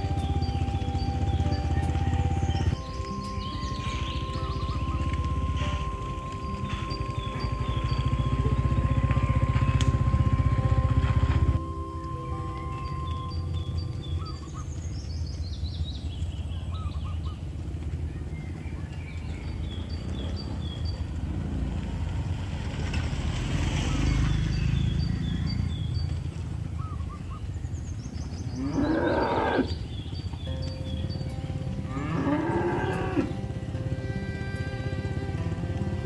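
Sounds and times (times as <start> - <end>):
faint high chirping: 0.0 - 11.0
steady low rumble: 0.0 - 23.4
cattle mooing: 28.6 - 29.8, 31.7 - 36.0.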